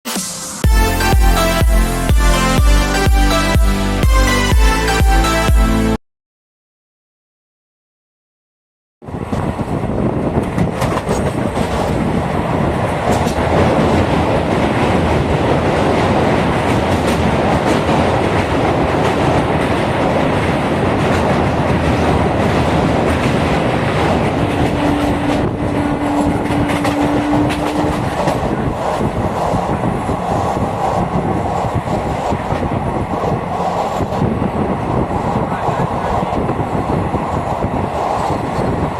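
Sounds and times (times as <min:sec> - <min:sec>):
steady tone: 0:00.1 - 0:06.0
train rumbling on track: 0:09.0 - 0:38.9.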